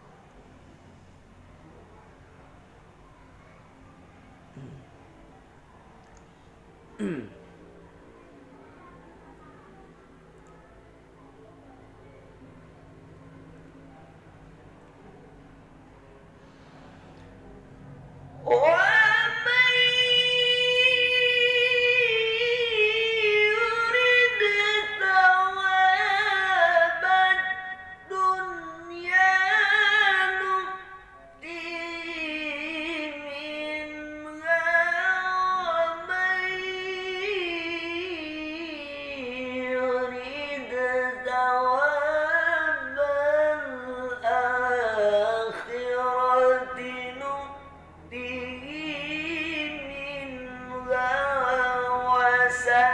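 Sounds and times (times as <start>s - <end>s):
person chanting recitation: 18.3s - 52.9s.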